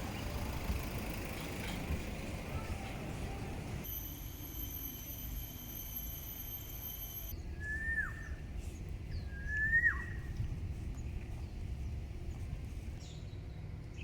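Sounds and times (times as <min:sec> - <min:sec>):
low outdoor rumble: 0:00.0 - 0:03.9, 0:07.3 - 0:14.0
bird whistling: 0:07.6 - 0:08.4, 0:09.2 - 0:10.2.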